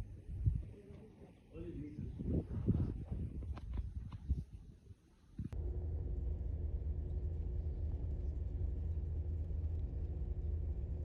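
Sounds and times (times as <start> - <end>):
faint steady hum: 5.4 - 11.0
vehicle rumbling: 5.5 - 11.0.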